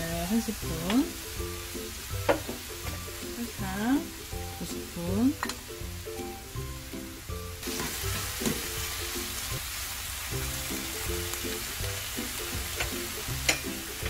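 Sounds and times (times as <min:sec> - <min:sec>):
food sizzling in oil: 0:00.0 - 0:14.0
spatula clicking against pan: 0:12.8 - 0:13.8.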